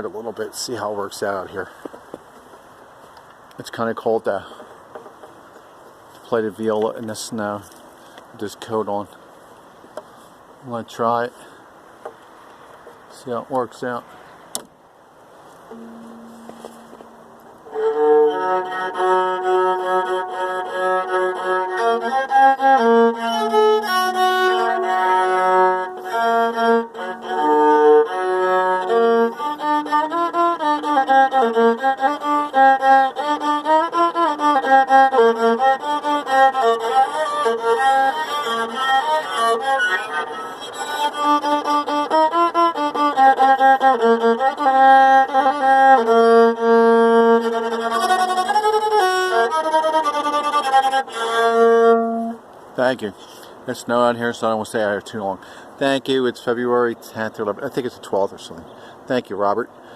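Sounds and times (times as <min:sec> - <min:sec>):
bowed viola melody: 0:15.7 - 0:52.5.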